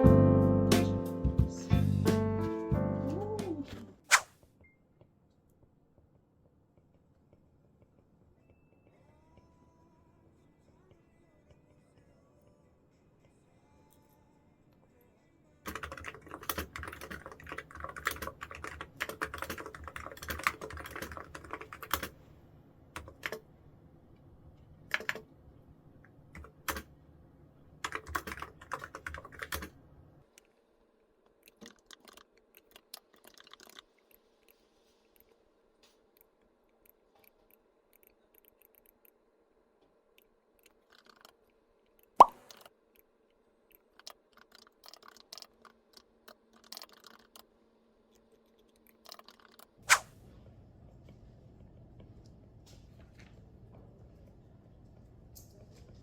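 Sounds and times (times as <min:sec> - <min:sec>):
typing on computer keyboard: 0:15.7 - 0:22.2, 0:23.0 - 0:23.4, 0:24.9 - 0:25.2, 0:26.4 - 0:26.9, 0:27.8 - 0:29.8, 0:31.4 - 0:33.9, 0:43.8 - 0:47.4.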